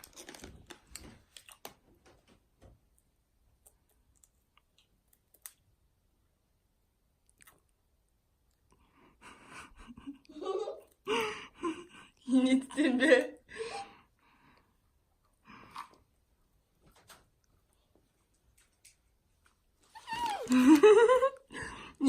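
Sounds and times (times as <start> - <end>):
potato chips being chewed: 0.0 - 1.8, 3.6 - 5.7, 7.2 - 7.8.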